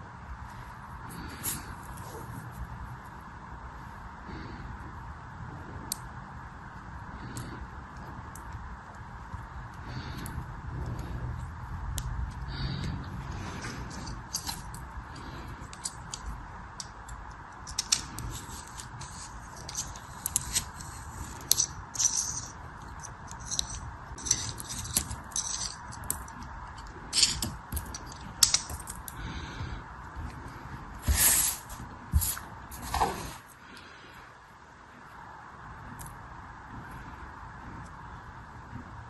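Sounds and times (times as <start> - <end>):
brittle material crackling and snapping: 7.4 - 29.2.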